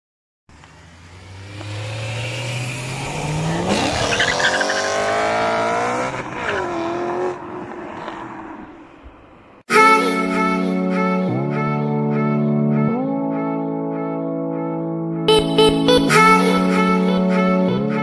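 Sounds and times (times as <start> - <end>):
car engine revving hard: 0.5 - 8.7.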